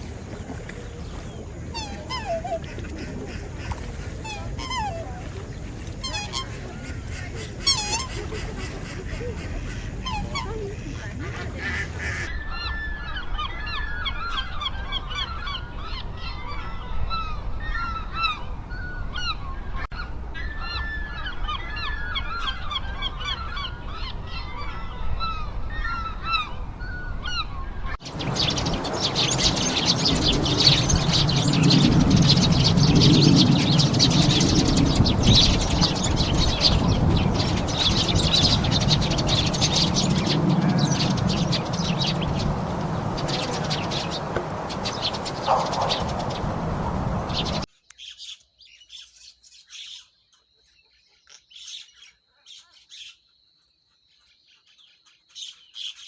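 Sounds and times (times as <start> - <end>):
chorus of many birds: 0.0 - 53.3
high descending bird calls: 28.1 - 47.7.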